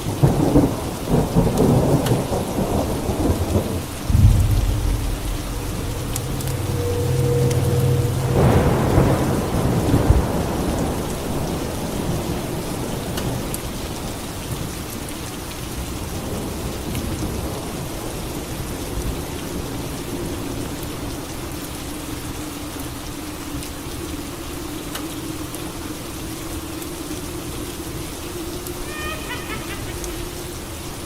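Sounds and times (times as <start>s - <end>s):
steady rain: 0.0s - 31.0s
thunder rolling: 0.2s - 12.3s.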